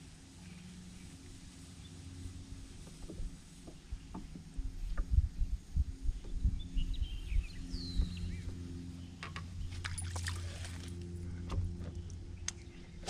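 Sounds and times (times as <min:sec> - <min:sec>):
steady low hum: 0:00.0 - 0:13.0
low thumps and knocks: 0:02.8 - 0:06.6.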